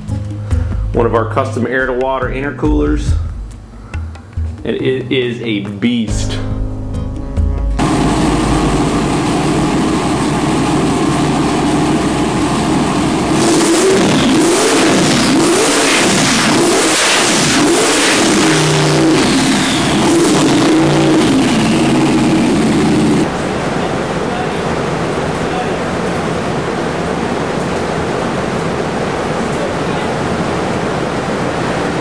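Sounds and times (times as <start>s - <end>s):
vee eight engine revving: 7.6s - 32.0s.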